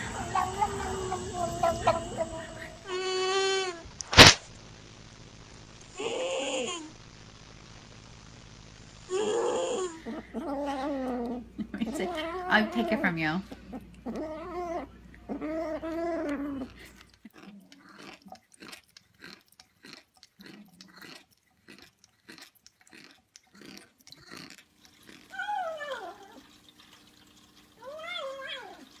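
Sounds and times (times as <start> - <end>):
cat chewing crunches: 16.1 - 25.3
cat yowling and meowing: 25.3 - 26.4, 27.8 - 28.9.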